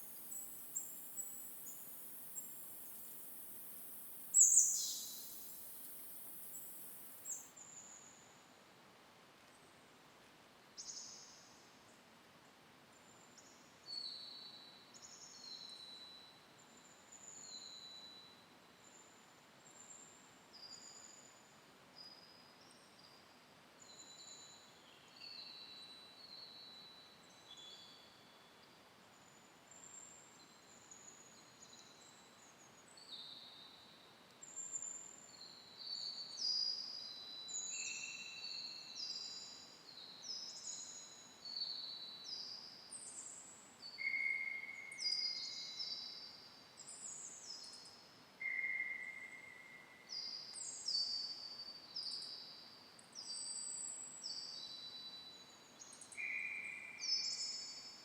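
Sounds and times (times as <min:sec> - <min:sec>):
small songbirds chirping: 0:00.0 - 0:08.4, 0:13.0 - 0:58.0
faint steady hiss: 0:00.0 - 0:58.0.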